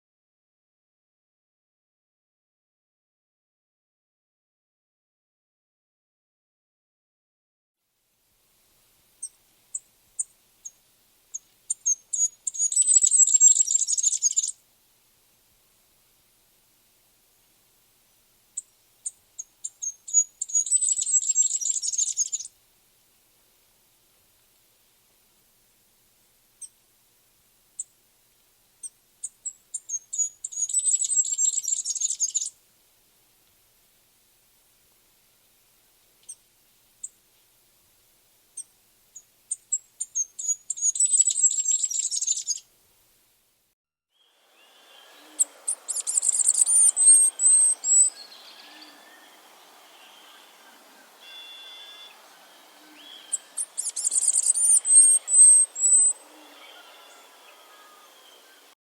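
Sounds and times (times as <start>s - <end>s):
songbird chipping and trilling: 9.2s - 14.6s, 18.6s - 22.5s, 28.8s - 32.6s, 38.6s - 42.6s, 44.2s - 58.7s.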